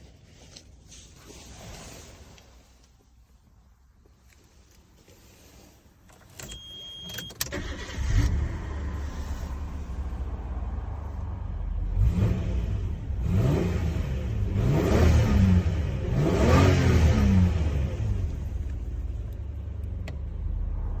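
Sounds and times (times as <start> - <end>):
car engine idling and revving: 7.5 - 21.0.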